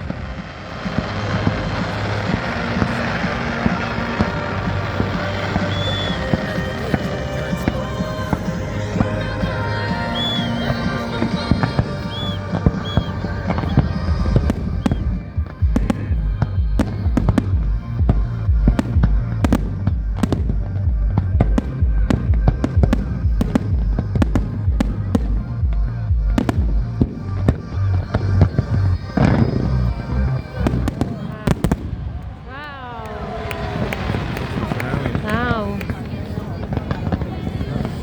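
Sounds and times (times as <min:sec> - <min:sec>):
music with pulsing bass beat: 0:00.0 - 0:31.8
fireworks bangs and crackles: 0:00.0 - 0:38.0.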